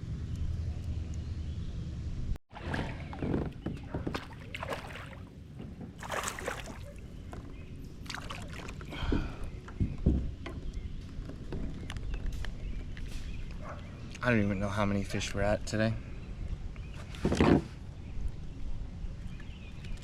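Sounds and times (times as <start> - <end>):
water sloshing: 2.5 - 9.5.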